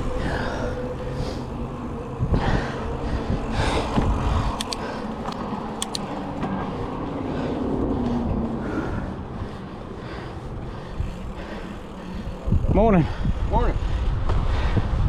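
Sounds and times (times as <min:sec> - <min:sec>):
bicycle tyres rolling on dirt: 0:00.0 - 0:15.0
bike rattling over bumps: 0:00.0 - 0:15.0
wind noise: 0:00.0 - 0:15.0
sharp metallic ticks: 0:04.5 - 0:06.4.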